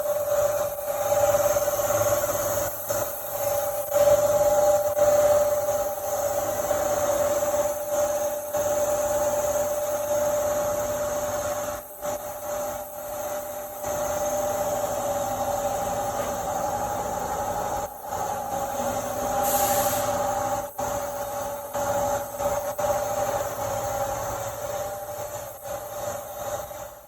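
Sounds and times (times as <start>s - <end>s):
milling machine whine: 0.0s - 27.0s
short high hiss: 19.4s - 20.2s.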